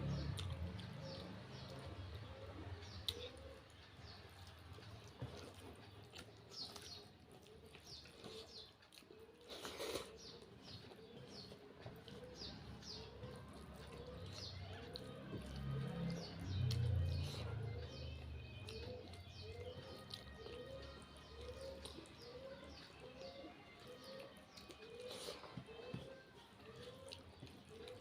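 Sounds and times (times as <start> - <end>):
lower repeated bird calls: 6.5 - 28.0.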